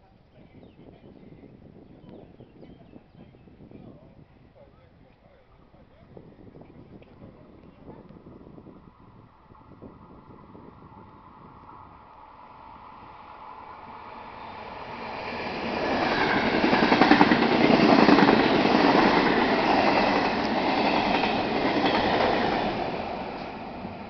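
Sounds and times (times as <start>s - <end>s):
passing train rumble: 8.1s - 24.0s.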